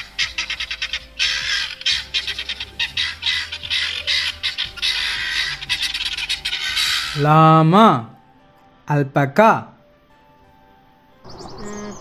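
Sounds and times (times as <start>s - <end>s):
guinea fowl raspy calls: 0.0s - 7.2s.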